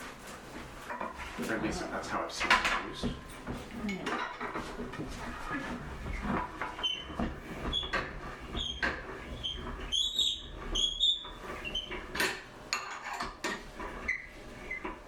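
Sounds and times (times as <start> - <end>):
short high squeaks: 9.4 - 12.0.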